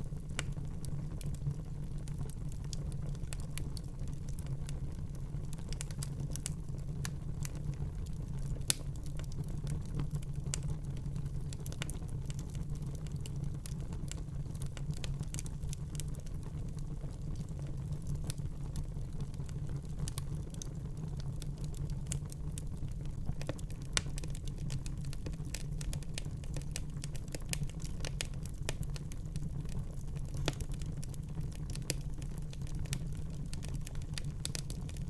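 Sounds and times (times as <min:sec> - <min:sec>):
fire flames rumbling: 0:00.0 - 0:35.0
wood fire crackling and popping: 0:00.0 - 0:35.0.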